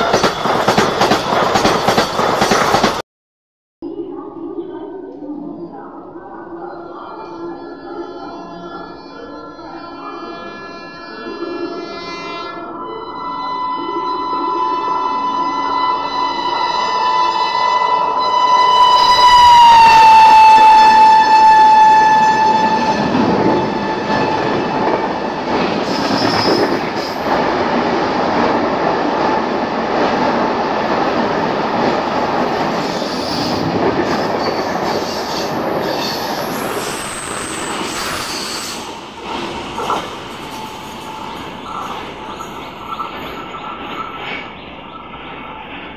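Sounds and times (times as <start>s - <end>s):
train coaches rumbling past: 0.0s - 3.0s, 13.5s - 45.9s
locomotive horn blaring: 10.2s - 26.6s.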